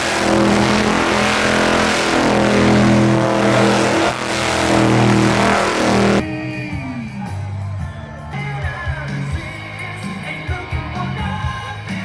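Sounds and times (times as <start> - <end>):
truck engine revving: 0.0 - 6.2.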